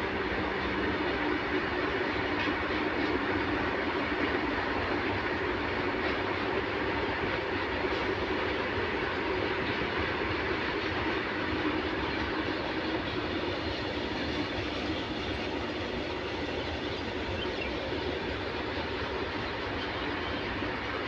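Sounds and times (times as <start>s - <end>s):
train wheels on rails: 0.0s - 21.0s.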